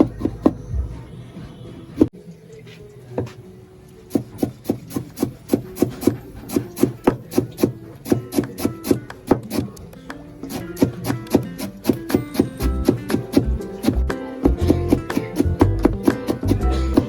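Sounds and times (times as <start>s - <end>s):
quiet background music: 0.0s - 17.0s
rhythmic strokes on wooden board: 4.1s - 9.8s, 10.4s - 17.0s.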